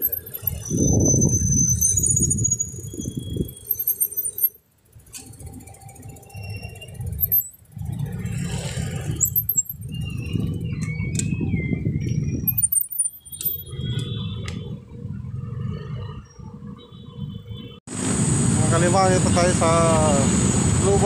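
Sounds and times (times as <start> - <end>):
wavering high squeal: 0.0 - 4.6, 5.2 - 16.7
bicycle rattling and jingling: 0.0 - 14.3
wind rumble on microphone: 0.4 - 3.7, 7.8 - 12.7.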